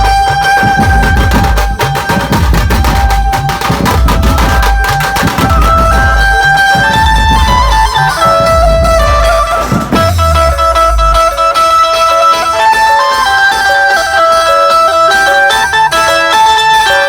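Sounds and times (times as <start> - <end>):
heavy drums and bass: 0.0 - 11.9
electronic keyboard melody: 0.0 - 17.0.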